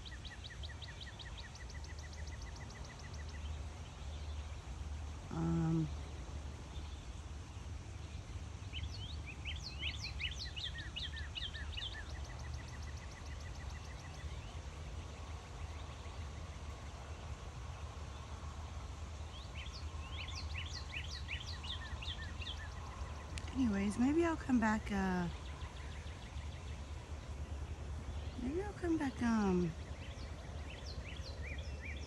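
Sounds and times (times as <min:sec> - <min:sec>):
birds chirping: 0:00.0 - 0:32.0.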